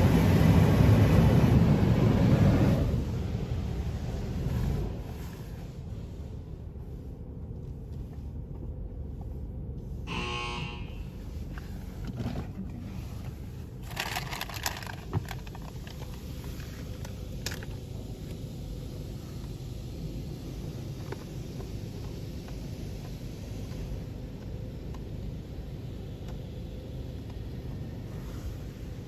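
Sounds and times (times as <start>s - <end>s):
car engine idling: 0.0s - 29.0s
short electronic beep: 10.1s - 11.0s
hiss and clicks: 11.1s - 29.0s.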